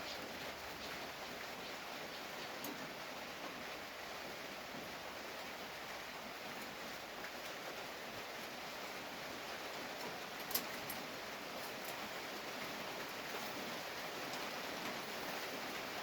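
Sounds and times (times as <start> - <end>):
background hiss: 0.0 - 16.0
faint small clicks: 10.4 - 11.0.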